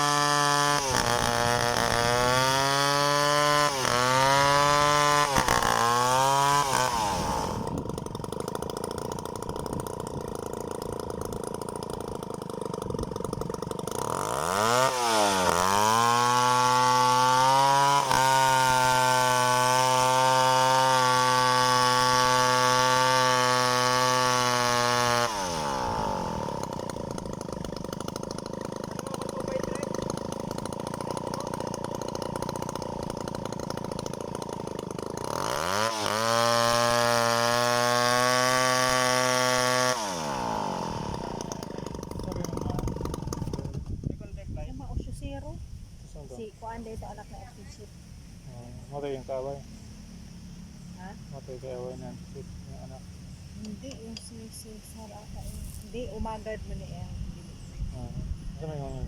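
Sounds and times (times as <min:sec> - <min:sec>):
chainsaw engine revving: 0:00.0 - 0:44.8.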